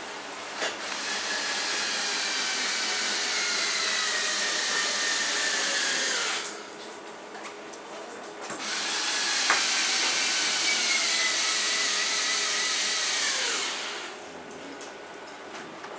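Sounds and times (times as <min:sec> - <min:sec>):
power tool motor whining: 0:00.7 - 0:06.7, 0:08.6 - 0:14.2.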